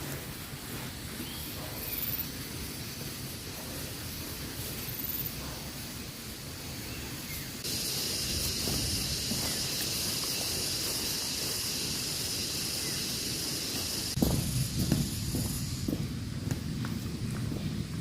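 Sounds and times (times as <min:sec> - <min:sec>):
steady high hiss: 0:00.0 - 0:18.0
low rumble: 0:14.1 - 0:18.0.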